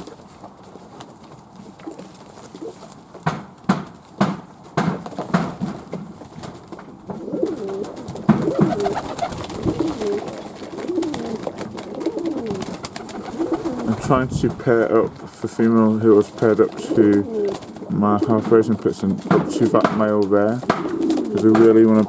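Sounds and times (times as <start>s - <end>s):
sharp knocks: 3.2s - 6.0s, 18.4s - 22.0s
pigeons cooing: 7.0s - 22.0s.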